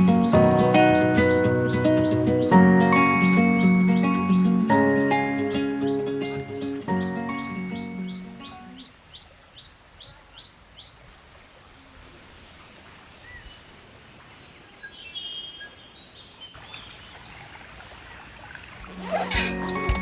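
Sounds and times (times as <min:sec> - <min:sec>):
bird chirps and calls: 0:00.0 - 0:11.0
outdoor background hiss: 0:00.0 - 0:20.0.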